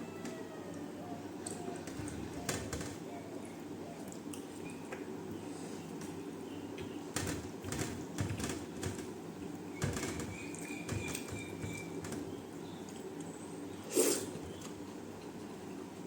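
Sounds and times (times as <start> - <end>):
low background hum: 0.0 - 16.0
chewing and wet mouth clicks: 4.0 - 5.1.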